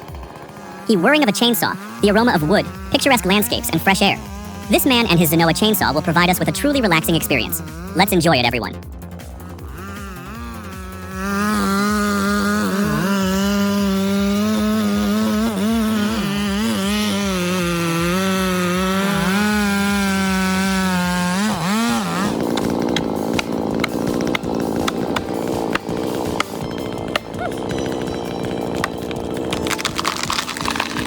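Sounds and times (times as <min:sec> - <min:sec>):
chainsaw cutting wood: 0:00.0 - 0:31.0
rough crackling with clicks: 0:21.4 - 0:31.0.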